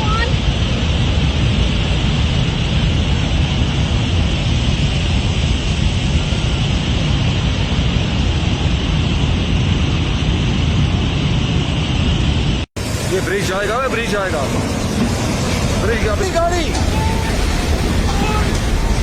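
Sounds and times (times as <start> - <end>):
rushing floodwater: 12.8 - 19.0.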